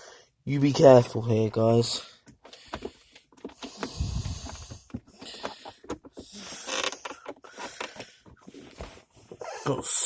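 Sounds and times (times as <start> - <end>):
gaiter material rustling and creaking: 3.3 - 9.4.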